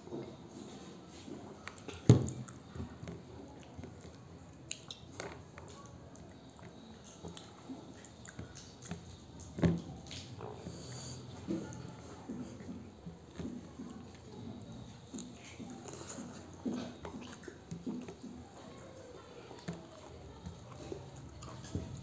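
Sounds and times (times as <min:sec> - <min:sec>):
person chewing food: 0:01.2 - 0:22.0.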